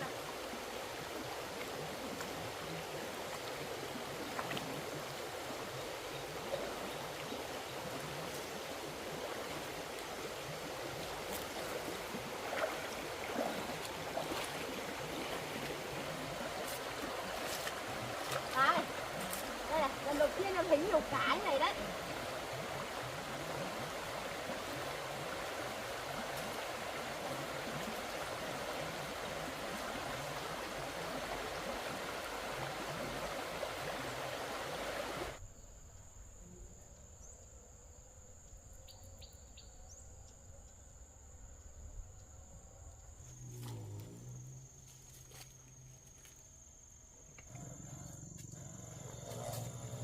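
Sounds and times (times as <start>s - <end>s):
stream water rushing: 0.0s - 35.4s
high insect drone: 34.3s - 50.0s.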